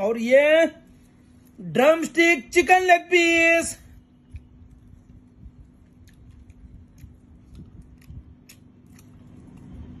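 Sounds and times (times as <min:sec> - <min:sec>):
chewing crispy fried chicken: 0:04.2 - 0:10.0.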